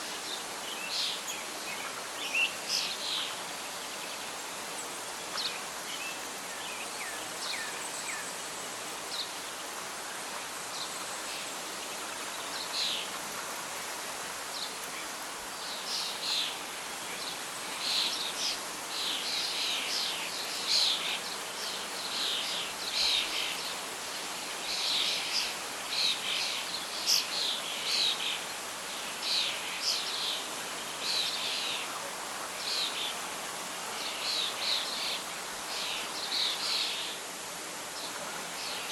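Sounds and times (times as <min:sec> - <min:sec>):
birds singing: 0:00.0 - 0:09.7
rustling leaves: 0:00.0 - 0:38.9
wind: 0:00.0 - 0:38.9.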